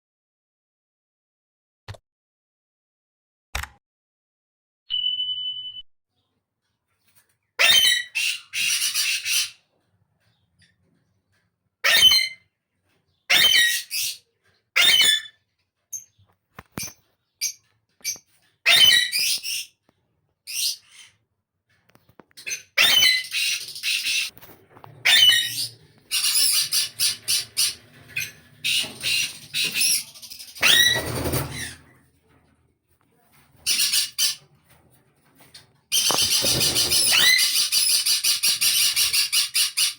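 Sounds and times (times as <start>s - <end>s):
parakeet squawking: 7.6s - 9.6s, 11.8s - 12.4s, 14.8s - 15.3s, 25.0s - 31.8s, 35.9s - 39.9s.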